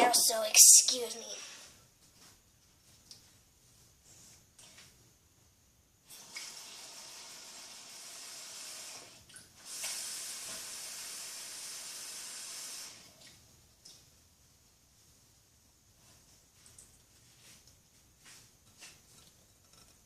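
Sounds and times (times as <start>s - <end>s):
tap water running into container: 6.1s - 13.4s.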